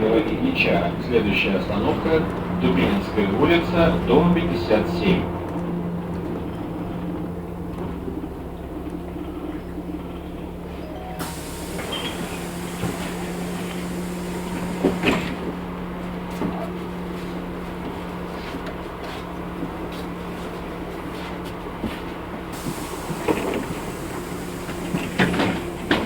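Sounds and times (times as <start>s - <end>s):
bus engine hum: 0.0s - 26.0s
ride rattles: 0.0s - 26.0s
air hiss: 11.2s - 15.3s, 22.6s - 26.0s.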